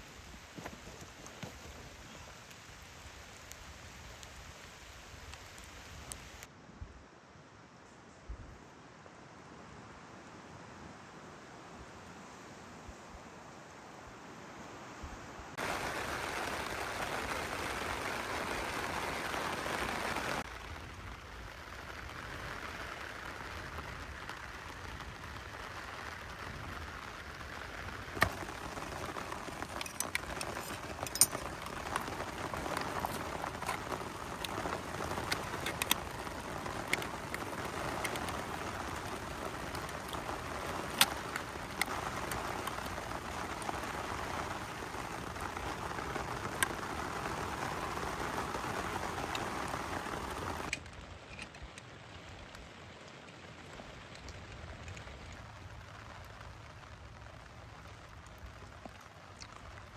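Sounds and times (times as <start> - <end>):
heavy rain hissing: 15.5 - 50.7.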